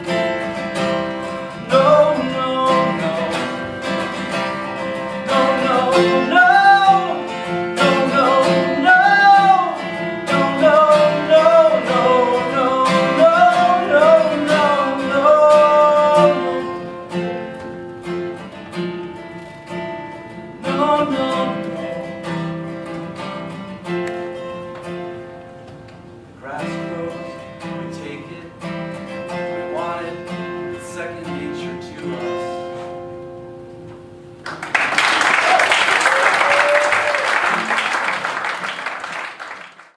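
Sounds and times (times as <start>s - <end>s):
acoustic guitar strumming: 0.0s - 34.7s
person singing: 1.7s - 3.6s, 5.2s - 16.9s.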